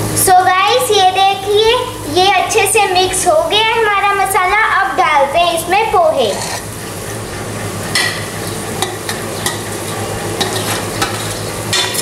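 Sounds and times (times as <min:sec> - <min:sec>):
vegetables sizzling in frying pan: 0:05.2 - 0:12.0.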